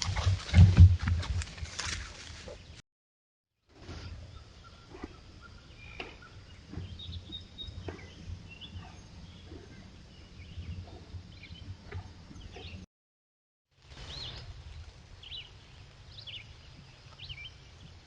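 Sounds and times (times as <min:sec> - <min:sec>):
low woodland rumble: 0:03.7 - 0:12.8, 0:13.9 - 0:18.0
bird chirps: 0:04.0 - 0:12.8.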